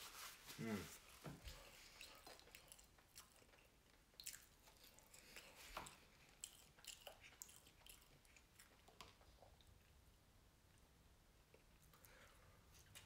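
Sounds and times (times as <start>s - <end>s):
faint chewing mouth clicks: 1.8s - 10.0s.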